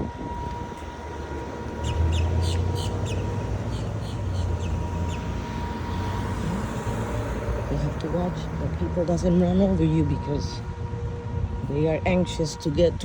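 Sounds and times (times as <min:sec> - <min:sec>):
vehicle rumbling by: 0:00.0 - 0:13.0.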